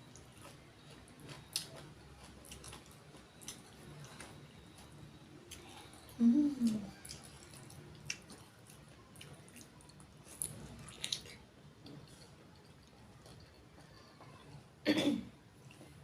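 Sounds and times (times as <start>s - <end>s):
person humming: 6.2s - 6.9s
wet chewing: 6.6s - 14.0s.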